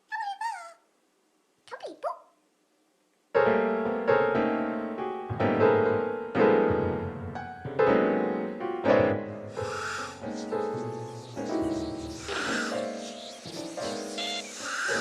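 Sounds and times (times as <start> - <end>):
slow sad piano chords: 3.4 - 15.0.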